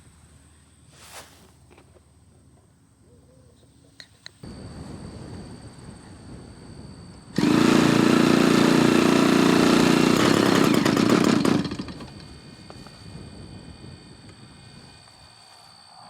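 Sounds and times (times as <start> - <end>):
model airplane engine buzzing: 7.3 - 12.5.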